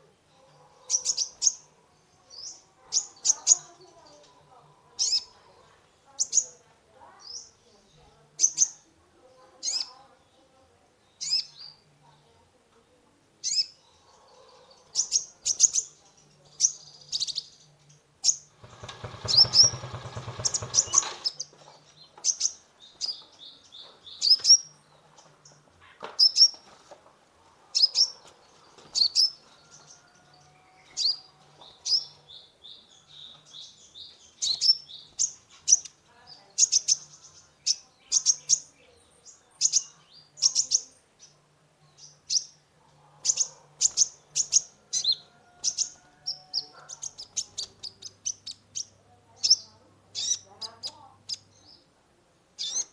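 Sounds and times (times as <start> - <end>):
bird chirps and trills: 14.8 - 21.6, 43.2 - 51.9, 52.6 - 52.9
loud rasping buzz: 18.5 - 21.3.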